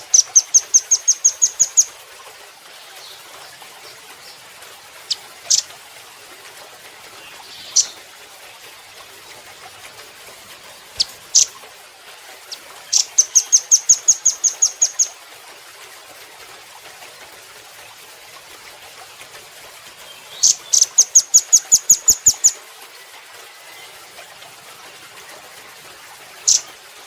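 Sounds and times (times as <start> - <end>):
bird calls and trills: 0.0 - 5.8, 7.0 - 9.9, 10.7 - 11.6, 12.4 - 15.2, 19.9 - 25.1, 26.4 - 26.8
faint steady hiss: 0.0 - 27.0.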